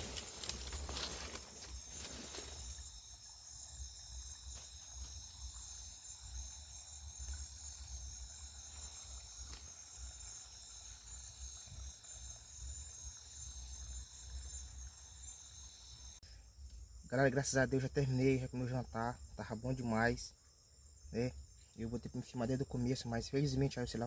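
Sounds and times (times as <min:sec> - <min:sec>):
crickets chirring: 0:00.0 - 0:24.0.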